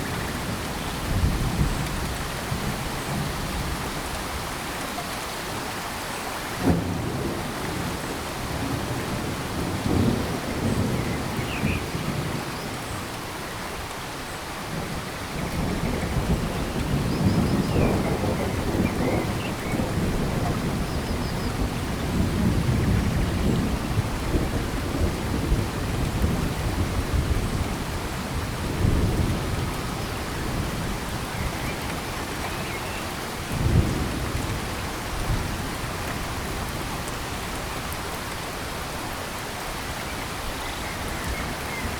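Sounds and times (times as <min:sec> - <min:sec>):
heavy rain falling: 0:00.0 - 0:41.9
deep thunder rumbles: 0:15.4 - 0:32.2.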